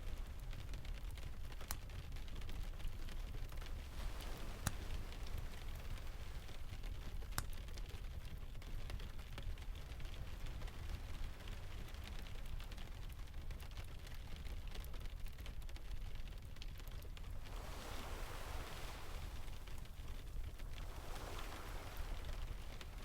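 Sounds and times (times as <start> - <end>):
steady rain: 0.0 - 23.0
distant surf rumble: 3.5 - 7.5, 17.2 - 23.0.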